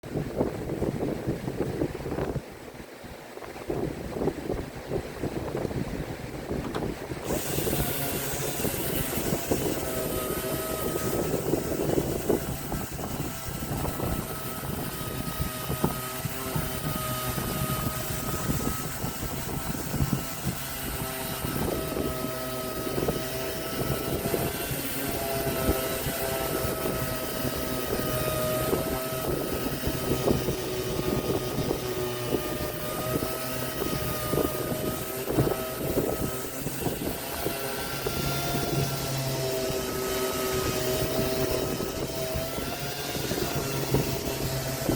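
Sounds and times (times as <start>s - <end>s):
power tool cutting wood: 6.7s - 44.9s.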